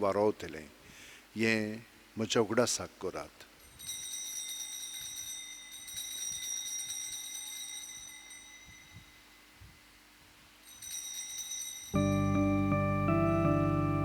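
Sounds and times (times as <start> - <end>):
altar bell ringing rapidly: 3.6 - 9.5, 10.6 - 14.0.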